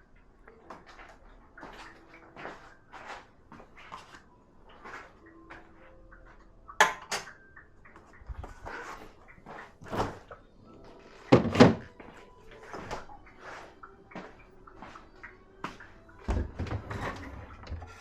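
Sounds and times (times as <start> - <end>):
dishes clinking and knocking: 6.8 - 7.4, 11.3 - 11.9.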